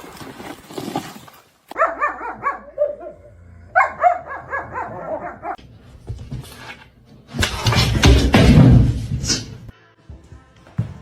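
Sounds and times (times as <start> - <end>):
dog yipping: 1.8 - 3.2, 3.8 - 5.6.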